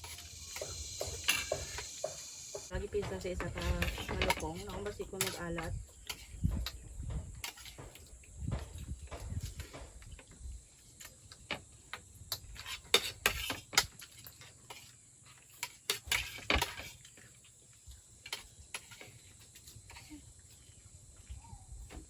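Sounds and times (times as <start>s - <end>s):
utensils clinking on dishes: 0.0s - 6.8s, 7.4s - 8.1s, 12.3s - 17.4s.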